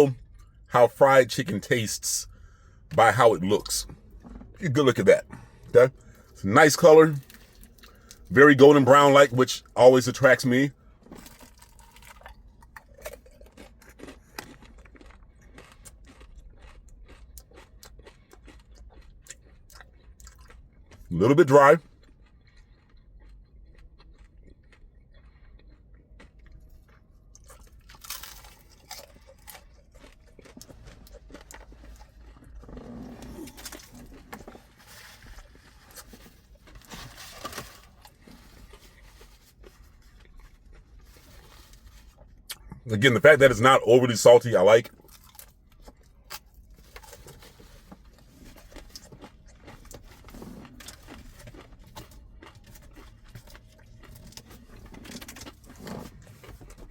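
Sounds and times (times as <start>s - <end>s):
chewing crispy chicken crunches: 0.0s - 56.9s.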